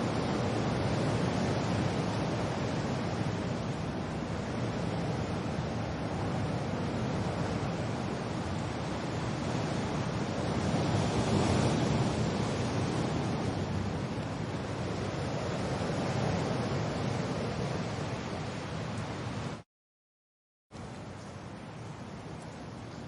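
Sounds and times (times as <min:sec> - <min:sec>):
rain: 0:00.0 - 0:19.6, 0:20.8 - 0:23.0.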